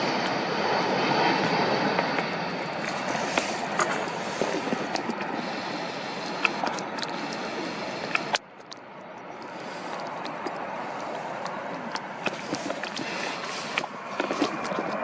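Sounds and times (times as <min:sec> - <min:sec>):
airliner engines rushing: 0:00.0 - 0:15.0
wind buffeting microphone: 0:00.0 - 0:15.0.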